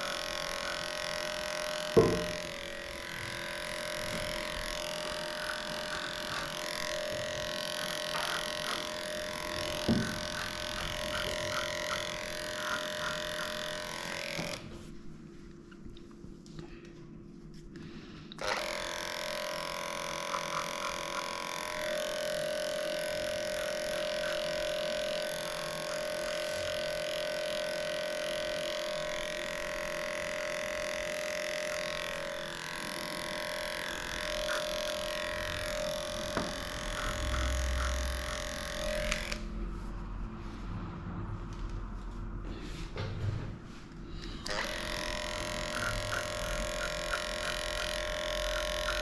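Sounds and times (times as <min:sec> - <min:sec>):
electric clippers running: 0:00.0 - 0:14.8, 0:18.4 - 0:39.5, 0:44.2 - 0:49.0.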